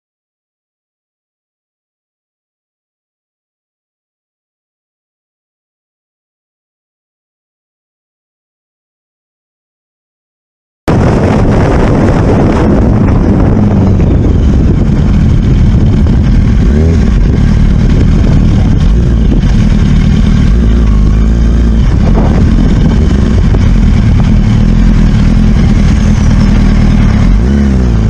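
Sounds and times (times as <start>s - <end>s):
vehicle engine running: 10.9s - 28.0s.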